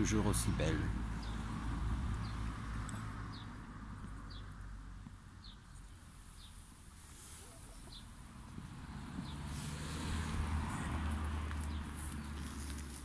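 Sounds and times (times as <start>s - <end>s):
small bird chirping: 7.4s - 8.2s.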